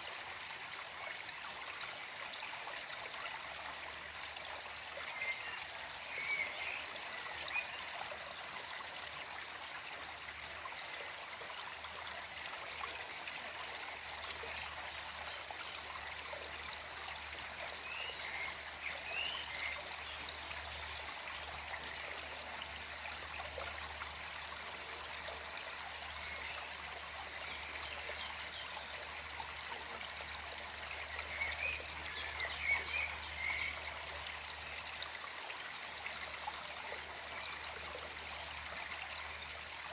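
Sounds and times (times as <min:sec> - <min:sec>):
stream flowing over stones: 0:00.0 - 0:39.9
songbird chirps: 0:17.8 - 0:20.8, 0:27.4 - 0:29.0, 0:31.0 - 0:33.9.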